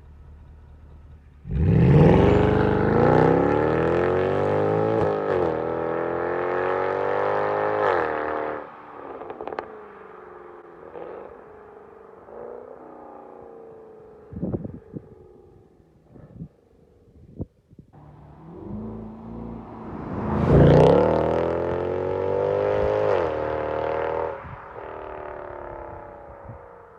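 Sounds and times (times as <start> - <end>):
car engine accelerating: 0.0 - 11.5, 18.0 - 26.5
exhaust bangs: 18.0 - 26.0.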